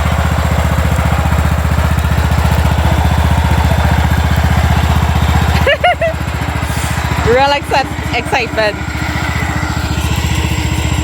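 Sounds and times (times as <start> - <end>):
riding lawnmower engine running: 0.0 - 11.0.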